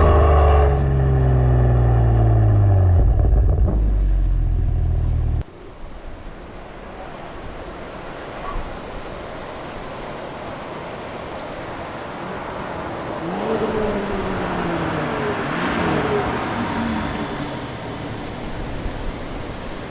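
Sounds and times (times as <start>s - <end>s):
road and wind noise: 0.0s - 19.9s
car passing by: 10.8s - 19.9s.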